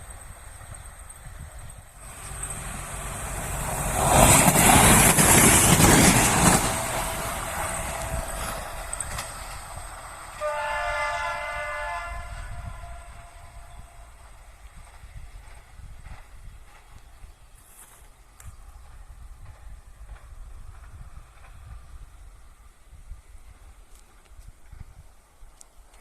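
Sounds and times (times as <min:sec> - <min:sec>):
passenger train passing: 0:00.0 - 0:26.0
wheels clattering over rail joints: 0:01.7 - 0:10.4
train horn: 0:06.3 - 0:09.0, 0:10.2 - 0:14.3.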